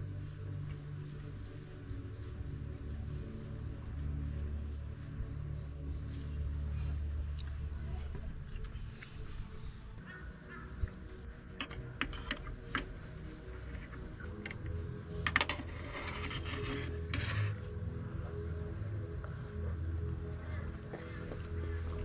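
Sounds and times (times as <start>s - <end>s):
high insect drone: 0.0s - 22.0s
soft background music: 0.0s - 22.0s.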